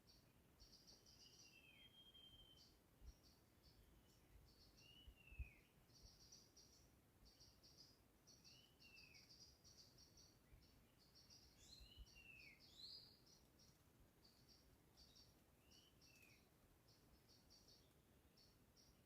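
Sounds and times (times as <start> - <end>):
down-slurred bird whistle: 1.2 - 2.7.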